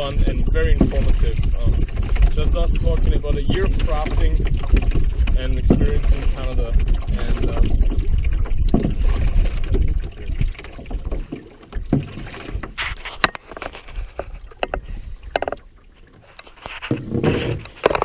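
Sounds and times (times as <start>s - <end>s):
paddle strokes splashing water: 0.0s - 18.0s
wind on microphone: 0.0s - 18.0s
paddle clicks: 8.3s - 18.0s.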